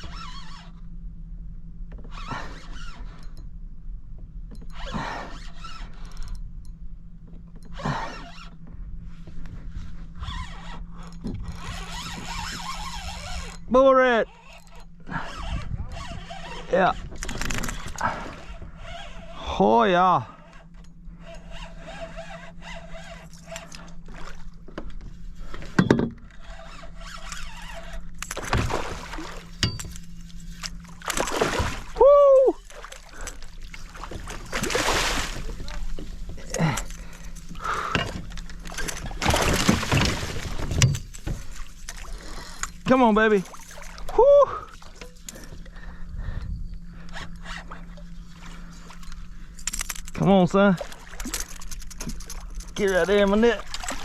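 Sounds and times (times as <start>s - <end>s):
fishing reel drag buzzing: 0.0s - 0.9s, 4.6s - 6.6s, 7.6s - 8.7s, 10.0s - 39.3s, 39.9s - 44.2s, 44.8s - 50.2s
water splashing around kayak: 21.7s - 46.0s, 50.6s - 54.0s.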